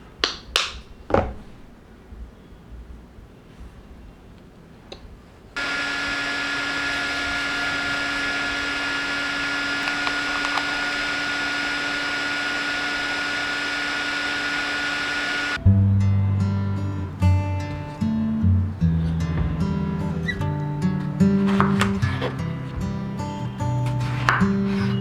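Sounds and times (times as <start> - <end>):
small appliance motor whining: 5.6 - 15.6, 21.4 - 25.0.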